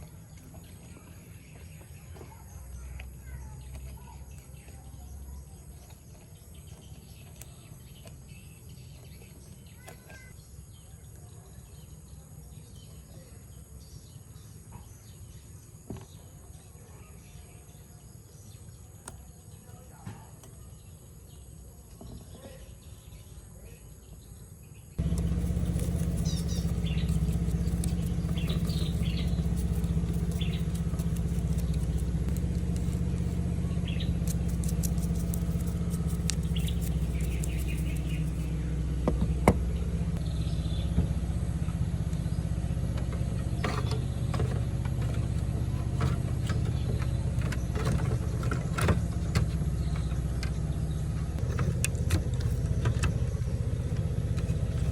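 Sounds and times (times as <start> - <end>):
birds chirping: 0.0 - 54.9
low mechanical hum: 0.0 - 54.9
sharp clicks: 25.0 - 38.5.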